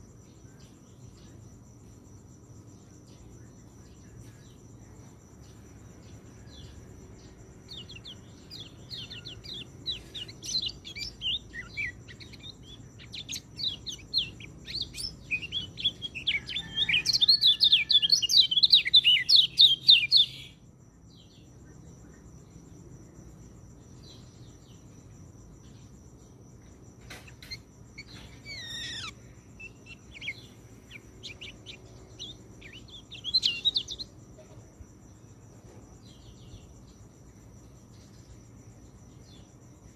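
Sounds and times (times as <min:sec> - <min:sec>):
insect trill: 0:00.0 - 0:39.9
bird twittering song: 0:02.6 - 0:22.4, 0:27.0 - 0:34.6, 0:36.0 - 0:37.2.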